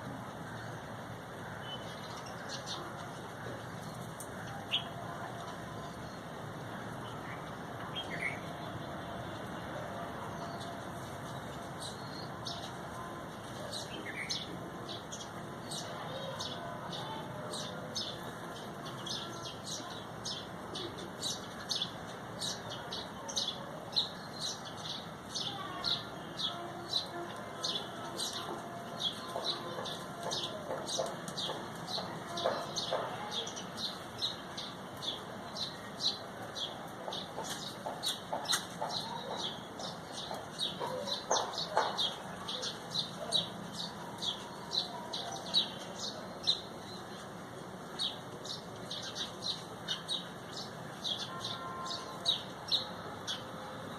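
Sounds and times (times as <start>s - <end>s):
small birds chirping: 10.3s - 53.5s.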